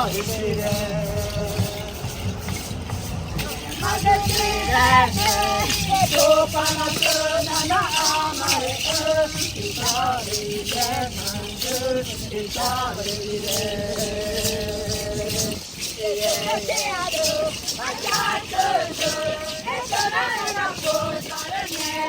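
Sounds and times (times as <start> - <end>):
hand rattles shaken: 0.0 - 22.0
voices singing a chant: 0.0 - 22.0.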